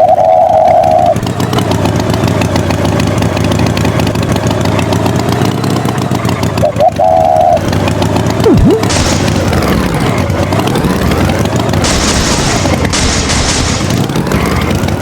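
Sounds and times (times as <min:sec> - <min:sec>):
cartoon tractor engine running: 0:00.0 - 0:15.0
sharp swooping drop: 0:08.4 - 0:10.2.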